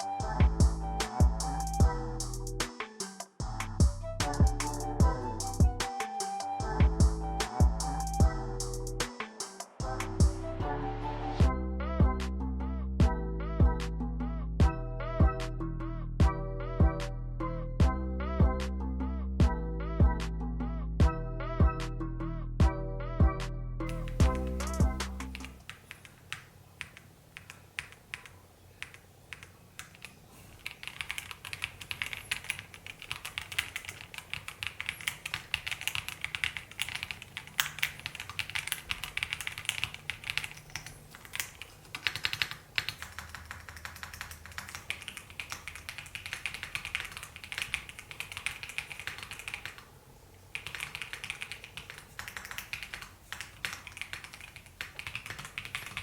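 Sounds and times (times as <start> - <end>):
mechanical keyboard typing: 23.9 - 49.9, 50.5 - 56.0.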